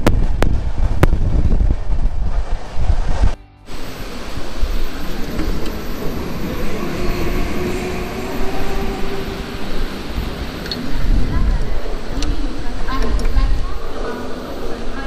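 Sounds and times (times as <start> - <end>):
train wheels rumbling on rails: 0.0 - 15.0
faint steady whine: 3.7 - 13.4.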